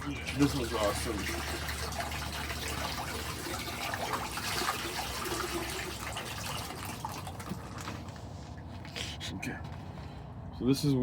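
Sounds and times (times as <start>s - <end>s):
pond filter water trickling: 0.0s - 8.8s.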